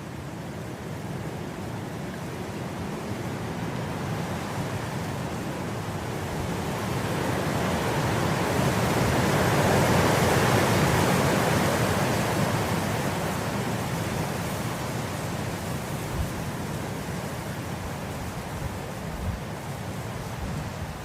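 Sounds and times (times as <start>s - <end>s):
wind blowing through grass: 0.0s - 21.0s.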